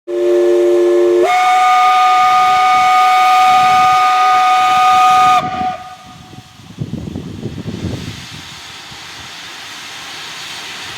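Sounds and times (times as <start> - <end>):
steam locomotive whistle: 0.1 - 6.6
steam hissing: 0.1 - 10.9.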